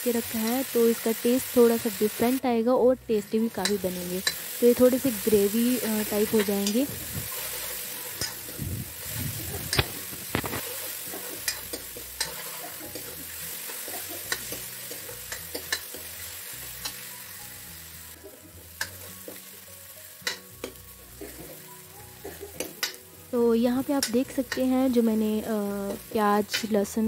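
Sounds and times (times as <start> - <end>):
paste sizzling in hot oil: 0.0 - 2.4, 3.1 - 27.0
spoon clicking on pan: 3.6 - 4.4, 11.4 - 13.2, 13.9 - 16.1, 18.8 - 19.4, 20.2 - 20.8, 22.6 - 23.0, 25.9 - 26.7
steel spoon scraping pan: 9.4 - 16.2.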